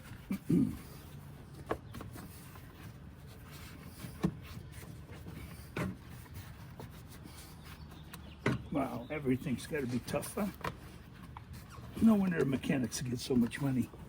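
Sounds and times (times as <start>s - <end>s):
knocks and clunks of car parts: 4.0s - 6.3s, 8.0s - 9.0s.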